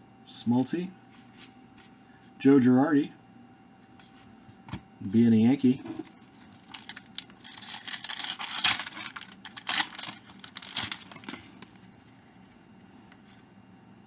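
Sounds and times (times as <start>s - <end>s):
wrapper tearing and crinkling: 6.0s - 11.8s.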